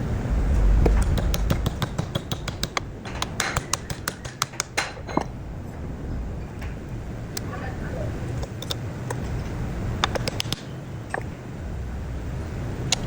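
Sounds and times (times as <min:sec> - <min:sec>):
low rumble: 0:00.0 - 0:10.2, 0:10.8 - 0:13.0
rapid sharp clicks: 0:00.8 - 0:05.0, 0:10.0 - 0:10.7.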